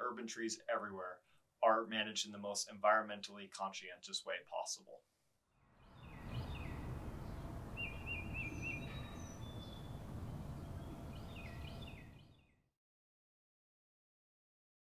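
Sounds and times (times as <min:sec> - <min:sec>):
low background rumble: 0:05.8 - 0:12.3
songbirds calling: 0:05.8 - 0:12.5
thin high whistles: 0:06.1 - 0:12.1.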